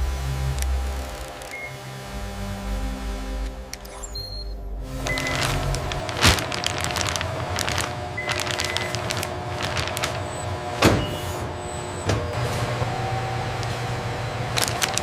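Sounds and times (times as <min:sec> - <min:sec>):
factory machinery whirring: 0:00.0 - 0:15.0
rapid clicking: 0:05.0 - 0:10.6.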